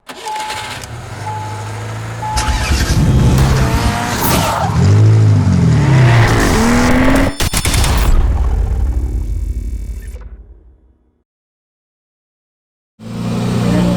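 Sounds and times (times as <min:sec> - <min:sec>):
car engines revving: 0:00.1 - 0:07.4, 0:13.0 - 0:13.9
short beeps: 0:00.2 - 0:01.6, 0:02.2 - 0:03.6.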